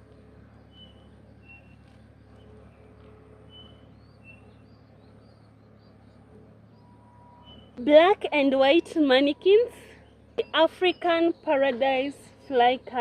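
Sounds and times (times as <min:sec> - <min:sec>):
low background hum: 0:00.0 - 0:13.0
bird whistling: 0:00.7 - 0:01.8, 0:03.5 - 0:04.6, 0:06.8 - 0:07.8.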